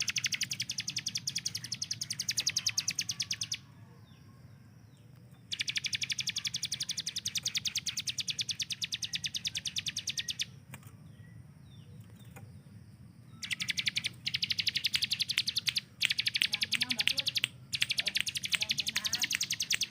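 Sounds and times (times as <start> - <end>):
bird rapid repeated high notes: 0.0 - 3.6, 5.5 - 10.5, 13.4 - 19.9
faint bird chirps: 0.0 - 19.9.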